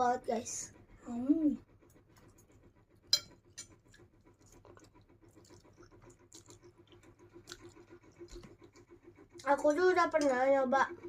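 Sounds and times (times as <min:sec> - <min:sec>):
electric fan humming: 0:00.0 - 0:11.0
chewing and eating clicks: 0:03.7 - 0:10.5.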